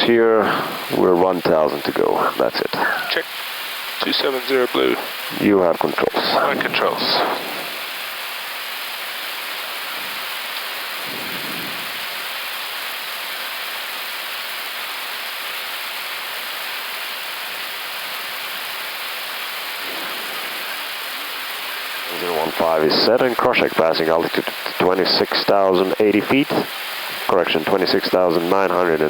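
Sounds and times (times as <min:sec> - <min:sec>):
cockpit airflow hiss: 0:00.0 - 0:29.0.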